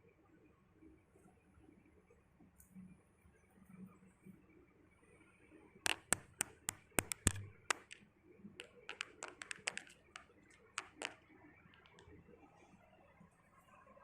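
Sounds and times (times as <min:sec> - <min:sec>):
sharp light taps and clicks: 0:05.9 - 0:08.0, 0:08.6 - 0:12.1.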